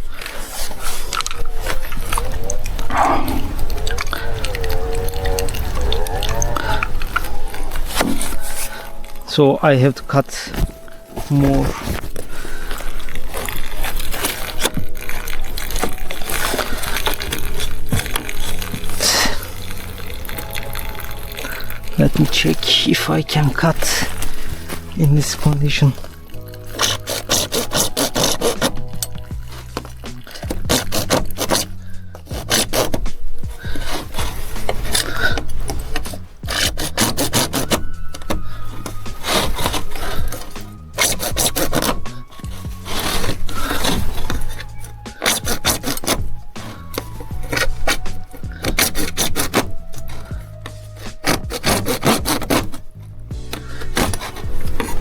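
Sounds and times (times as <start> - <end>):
hand saw cutting plastic pipe: 5.5 - 9.0, 11.4 - 55.0.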